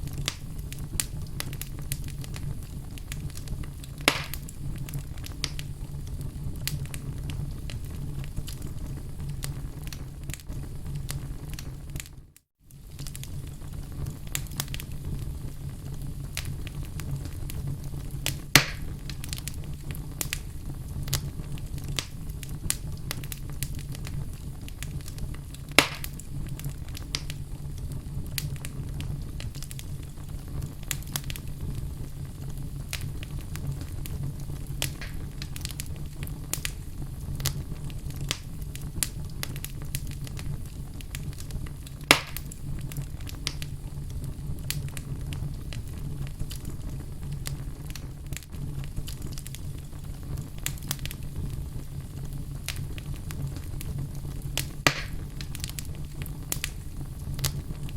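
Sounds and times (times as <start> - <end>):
loud fire pops: 0.0 - 57.9
wood fire crackling: 0.0 - 57.9.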